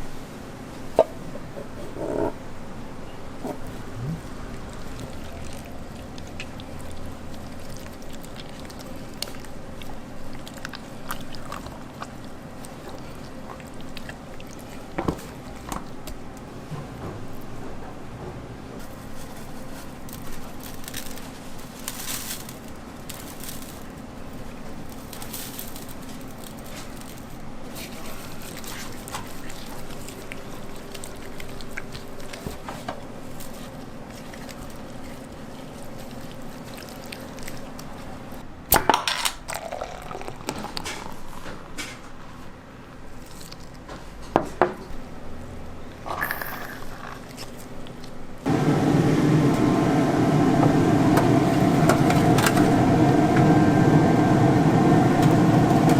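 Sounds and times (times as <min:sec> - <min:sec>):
steady background hum: 0:00.0 - 0:55.9
wet handling and pouring: 0:03.5 - 0:16.0, 0:18.8 - 0:38.4.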